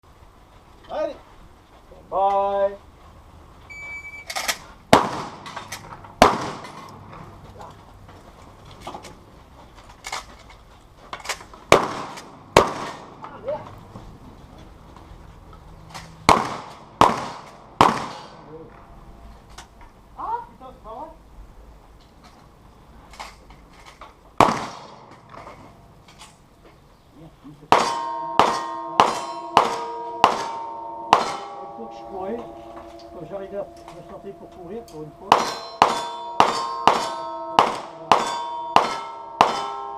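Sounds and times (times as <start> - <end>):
gun handling clicks: 4.2 - 4.7
loud gunshot: 4.9 - 5.5, 6.2 - 6.9, 11.7 - 13.1, 16.3 - 18.4, 24.4 - 25.1, 27.7 - 31.6, 35.3 - 39.8
steel plates ringing: 27.7 - 39.9.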